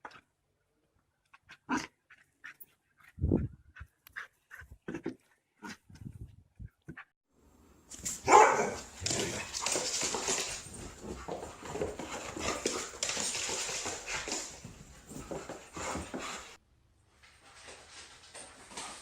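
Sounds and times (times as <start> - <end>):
dog barking and vocalizing: 8.2 - 9.6.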